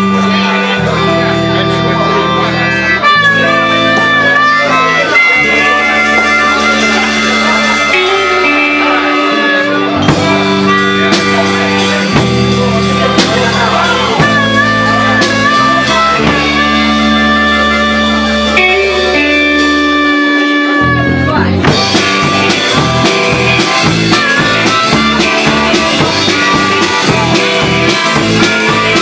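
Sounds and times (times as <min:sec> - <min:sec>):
guitar: 0:00.0 - 0:29.0
live rockabilly band playing: 0:00.0 - 0:29.0.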